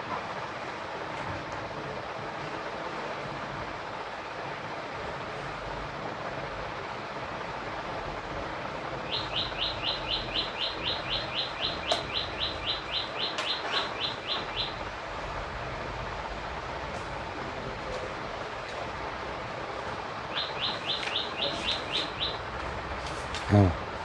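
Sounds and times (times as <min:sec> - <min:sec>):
bird chirping rapidly: 0:09.1 - 0:14.8, 0:20.3 - 0:22.5.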